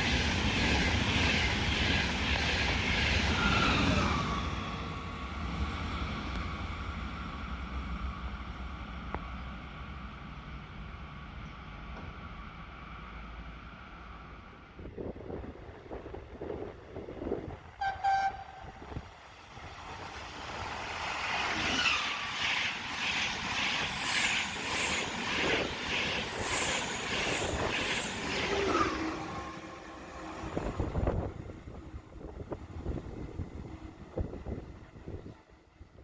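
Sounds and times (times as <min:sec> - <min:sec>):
train horn toot: 0:17.8 - 0:19.0.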